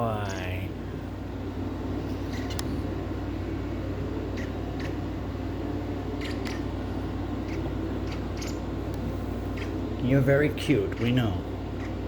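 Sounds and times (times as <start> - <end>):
low room hum: 0.0 - 12.0
baby bird chirping: 7.5 - 8.6.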